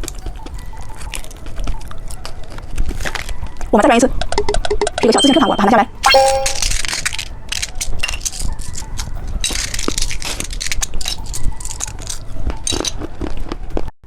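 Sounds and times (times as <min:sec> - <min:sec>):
plastic packaging clicking and crackling: 0:07.5 - 0:13.4.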